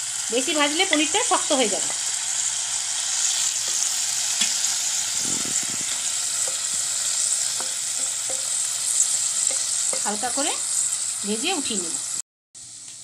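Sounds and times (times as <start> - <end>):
cheese cubes sizzling in oil: 0.0 - 13.0
wooden spatula knocking pan: 6.0 - 10.2.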